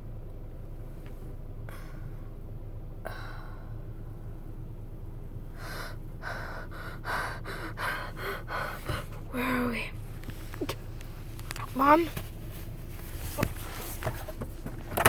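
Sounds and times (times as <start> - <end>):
steady low hum: 0.0 - 15.0
person breathing hard with gasps: 3.1 - 3.9, 5.5 - 9.3.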